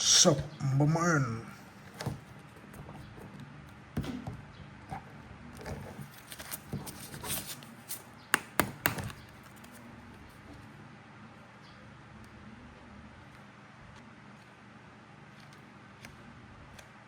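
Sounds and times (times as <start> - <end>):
plastic toy figures tapping and clicking: 8.3 - 9.4.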